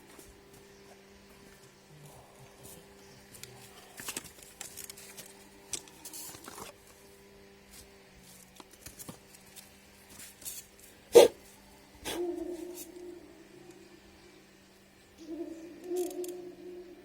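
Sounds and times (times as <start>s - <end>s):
faint steady hum: 0.0s - 17.0s
small objects clicking and rustling: 3.4s - 6.8s.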